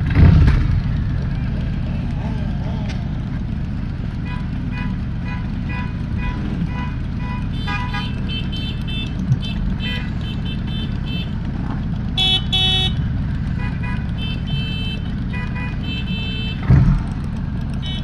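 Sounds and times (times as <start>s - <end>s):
motorcycle engines rumbling: 0.0s - 18.0s
horn toots and beeps: 4.2s - 11.4s, 12.1s - 16.8s, 17.8s - 18.0s.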